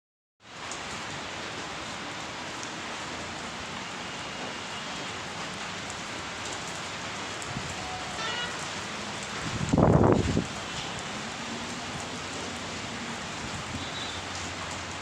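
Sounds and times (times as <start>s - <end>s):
rain falling: 0.4s - 15.0s.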